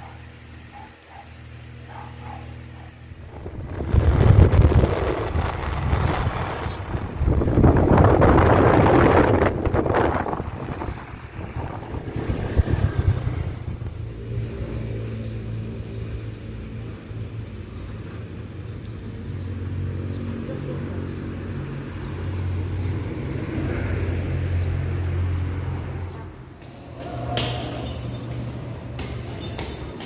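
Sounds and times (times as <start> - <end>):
vehicle engine humming: 0.0 - 30.0.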